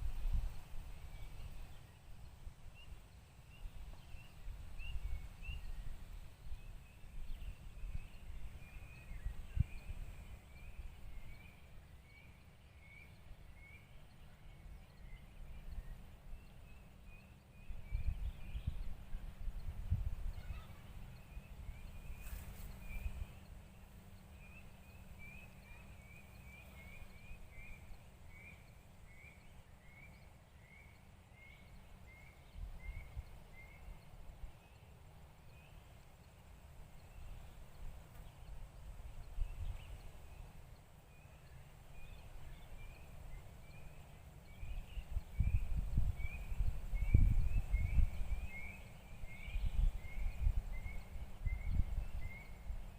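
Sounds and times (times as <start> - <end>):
songbird chirping: 0.0 - 52.9
other bird calls: 19.6 - 34.2.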